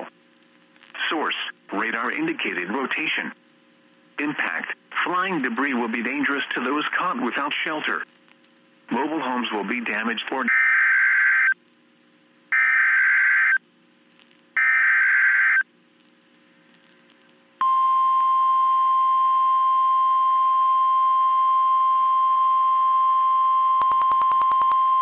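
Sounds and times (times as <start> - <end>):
steady alarm tone: 12.6 - 13.6.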